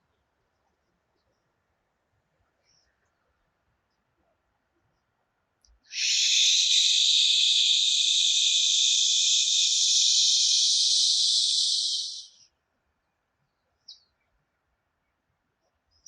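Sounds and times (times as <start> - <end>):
long hissing exhalation: 5.9 - 12.3.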